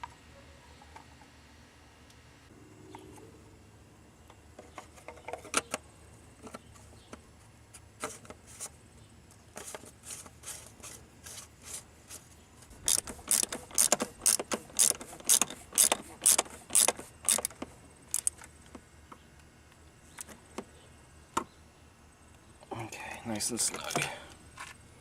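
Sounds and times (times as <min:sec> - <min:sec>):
ratchet wrench clicking: 0:12.8 - 0:18.4.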